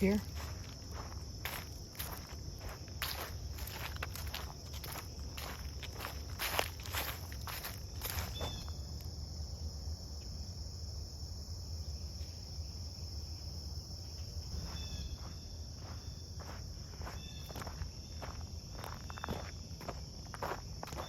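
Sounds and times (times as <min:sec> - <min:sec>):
footsteps on dry creek bed: 0:00.0 - 0:09.2, 0:14.4 - 0:21.0
insect chorus drone: 0:00.0 - 0:21.0.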